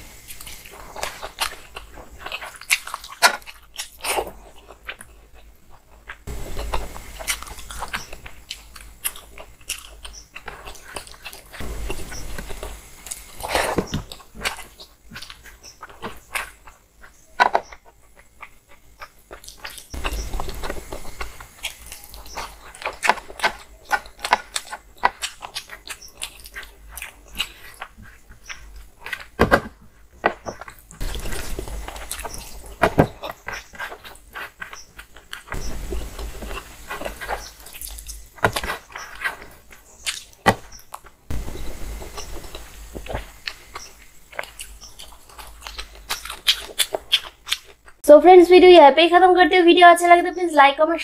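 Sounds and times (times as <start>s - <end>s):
chewing and lip-smacks: 0.3s - 11.6s, 17.8s - 29.3s, 36.9s - 41.1s, 42.1s - 48.0s.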